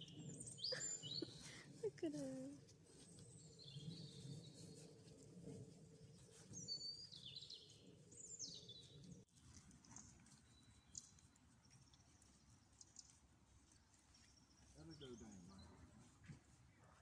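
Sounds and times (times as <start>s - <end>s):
birds chirping: 0.0s - 1.8s.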